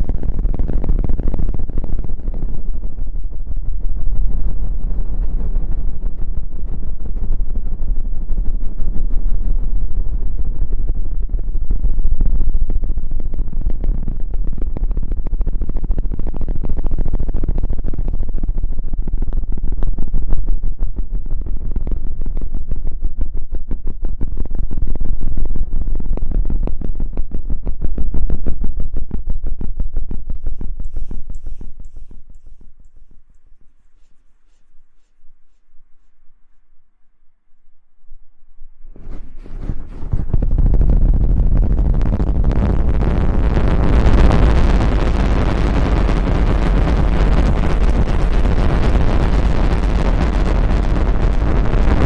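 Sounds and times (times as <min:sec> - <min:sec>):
rubbing on the microphone: 0:30.2 - 0:36.2, 0:38.9 - 0:52.0.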